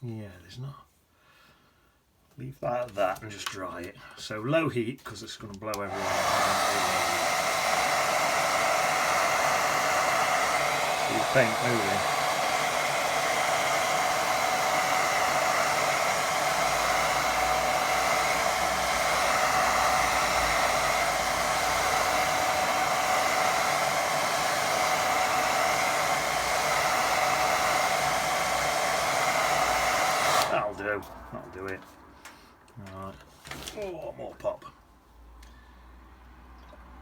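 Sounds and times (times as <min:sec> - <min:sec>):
hair dryer blowing: 0:05.7 - 0:31.7.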